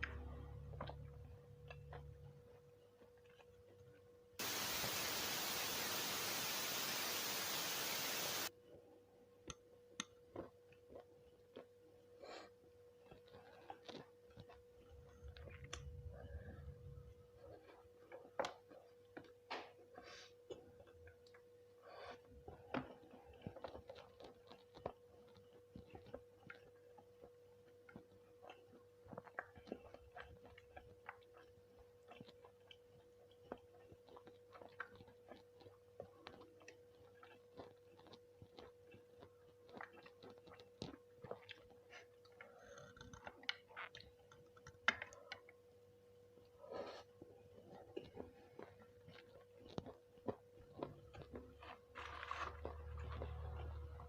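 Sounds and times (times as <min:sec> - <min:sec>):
chewing and mouth sounds: 0:00.1 - 0:04.6, 0:10.0 - 0:45.8, 0:46.4 - 0:54.0
faint steady hum: 0:04.4 - 0:10.0.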